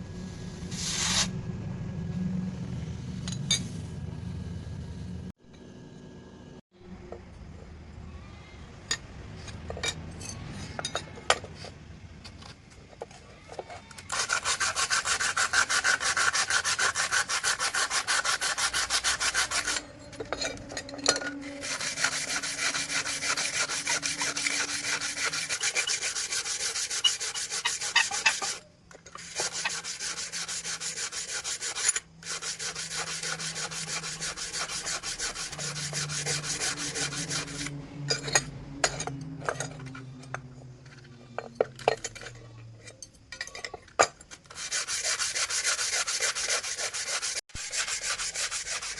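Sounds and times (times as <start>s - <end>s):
hand file scraping: 13.6s - 37.8s, 44.4s - 48.9s.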